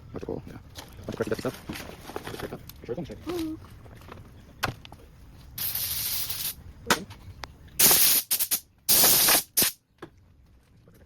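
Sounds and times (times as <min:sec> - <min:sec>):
spray hissing in short bursts: 0:05.6 - 0:06.6, 0:07.8 - 0:09.8.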